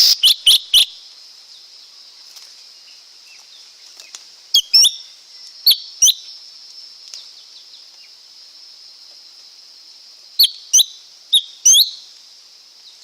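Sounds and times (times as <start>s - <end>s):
bird calling sharp sweeping notes: 0.0s - 0.9s
steady high hiss: 0.0s - 13.0s.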